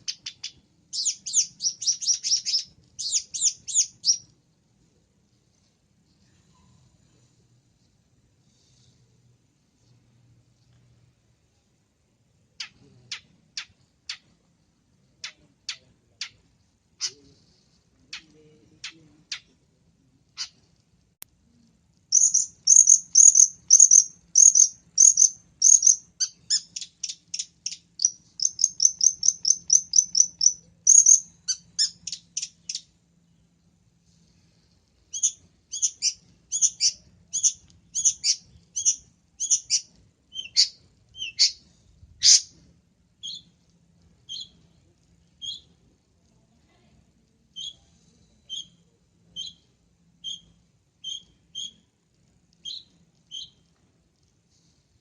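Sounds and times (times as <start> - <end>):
shrike singing and mimicking birds: 0.0 - 4.3, 22.1 - 32.9, 35.1 - 41.6, 42.2 - 42.5.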